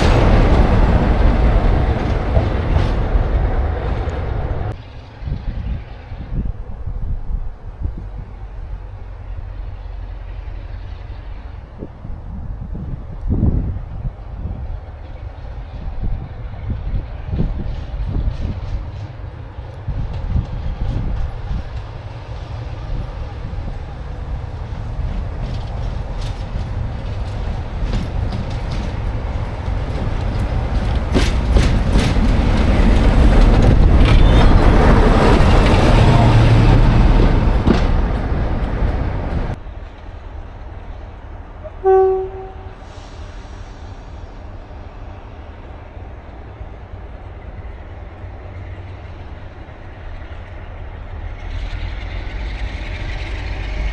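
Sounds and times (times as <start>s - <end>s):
diesel train passing: 0.0s - 53.9s
wheels clicking over rail joints: 16.9s - 40.9s
train horn toot: 41.6s - 43.2s.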